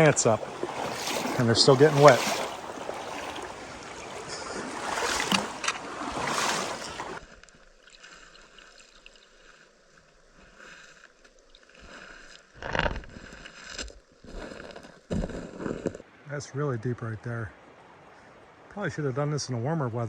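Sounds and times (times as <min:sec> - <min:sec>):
creek water rushing: 0:00.0 - 0:07.2, 0:16.0 - 0:19.3
legs wading through water: 0:00.0 - 0:16.0.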